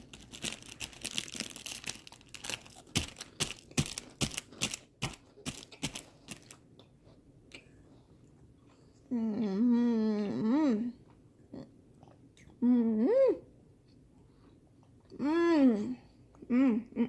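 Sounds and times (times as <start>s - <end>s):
cracker crunching: 0.0s - 6.9s.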